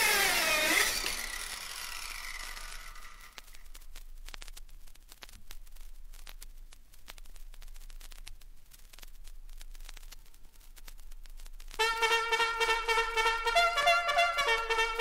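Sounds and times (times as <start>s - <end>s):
faint hiss: 3.3s - 12.5s
vinyl clicks and pops: 3.4s - 11.8s.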